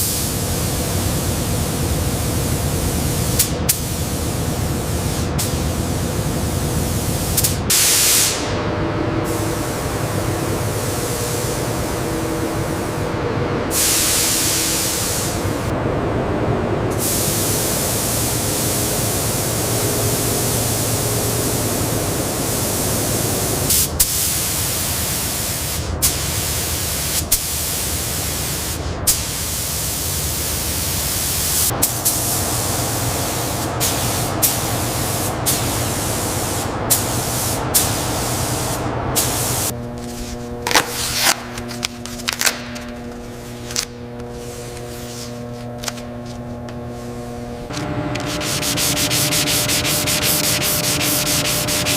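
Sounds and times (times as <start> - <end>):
steady hum: 0.0 - 30.5, 31.4 - 51.9
high-pressure spray hissing: 6.8 - 8.5, 13.7 - 15.5, 17.0 - 39.7, 48.0 - 51.9.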